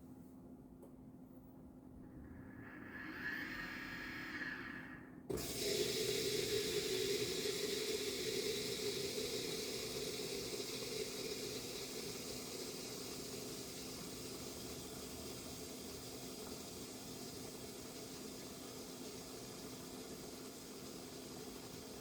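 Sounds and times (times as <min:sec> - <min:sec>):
dishwasher water rushing: 0:05.3 - 0:22.0.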